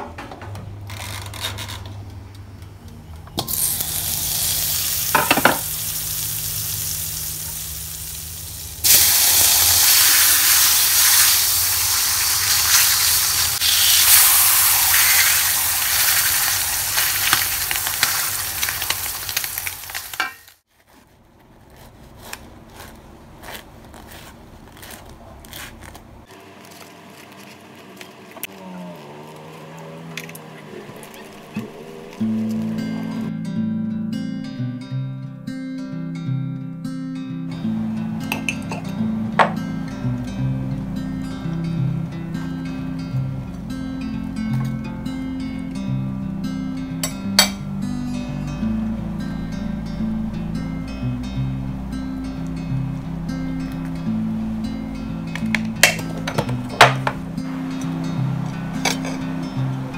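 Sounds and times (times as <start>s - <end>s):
fat sizzling in a wok: 3.4s - 20.6s
sharp crackle: 3.4s - 33.3s.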